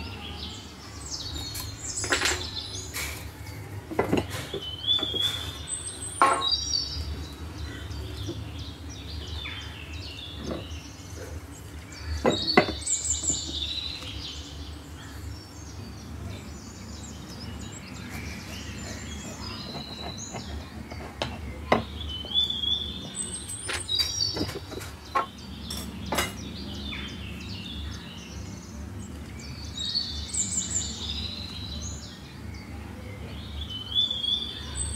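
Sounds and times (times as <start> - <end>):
birds chirping: 0.0 - 34.9.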